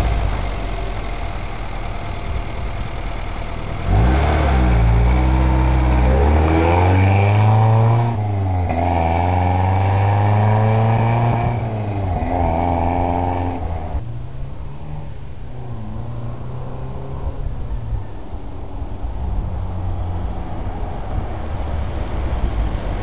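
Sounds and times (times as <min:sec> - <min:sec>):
car engine accelerating: 0:00.0 - 0:17.6.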